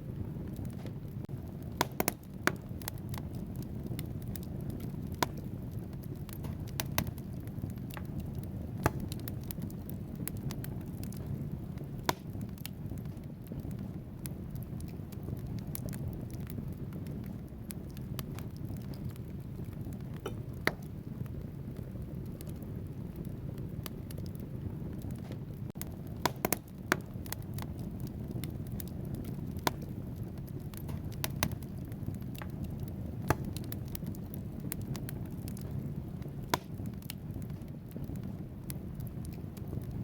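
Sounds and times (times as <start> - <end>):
logs crackling: 0.0 - 40.0
low rumble of flames: 0.0 - 40.0.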